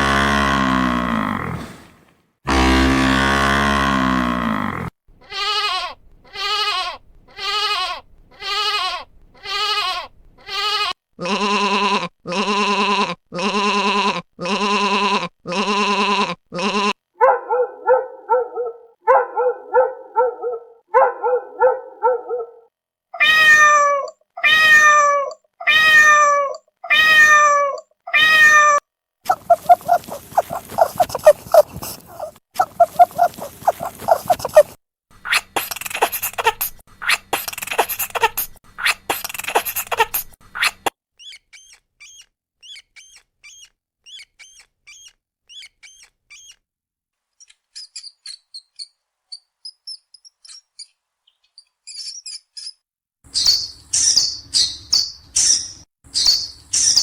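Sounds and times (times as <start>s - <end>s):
cat meowing: 23.2s - 34.6s.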